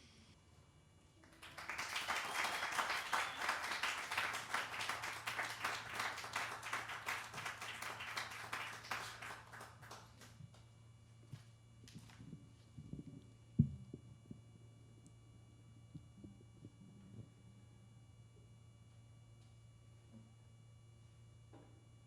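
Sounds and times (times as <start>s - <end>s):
audience applauding: 1.2s - 10.4s.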